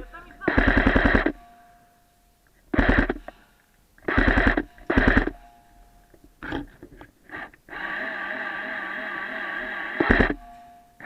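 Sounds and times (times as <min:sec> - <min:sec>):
airsoft gun full-auto bursts: 0:00.4 - 0:01.4, 0:02.7 - 0:03.3, 0:04.0 - 0:05.4, 0:07.3 - 0:10.4
faint noises: 0:05.9 - 0:10.4.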